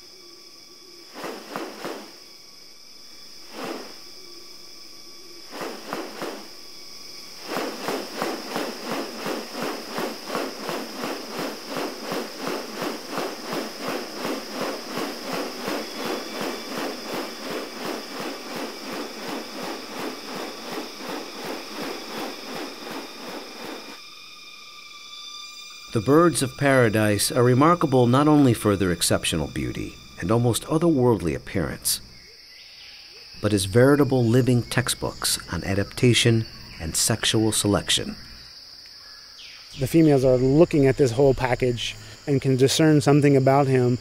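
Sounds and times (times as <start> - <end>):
high insect drone: 0.0 - 44.0
fast pulsing rattle: 7.4 - 24.0.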